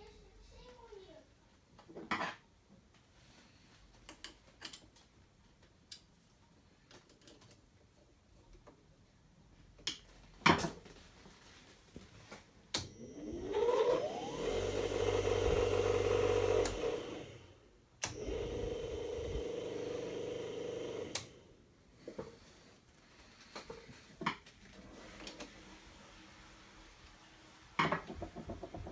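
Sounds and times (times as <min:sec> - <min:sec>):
electric motor whining: 0:12.8 - 0:21.4
switch clicks: 0:18.0 - 0:18.3.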